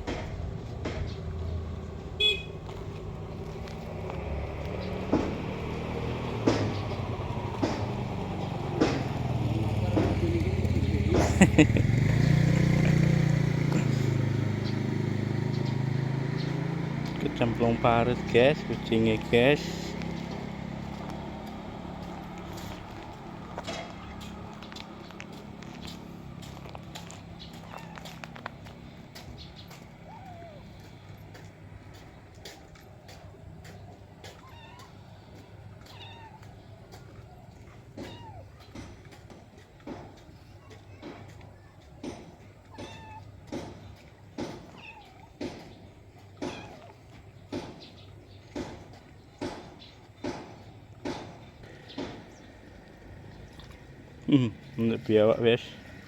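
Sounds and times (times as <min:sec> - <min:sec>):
small engine running: 0:03.1 - 0:46.7
cat meowing: 0:27.5 - 0:28.3, 0:30.0 - 0:30.7, 0:34.2 - 0:37.1, 0:37.9 - 0:38.7, 0:42.7 - 0:43.4, 0:44.6 - 0:45.4, 0:46.4 - 0:47.1.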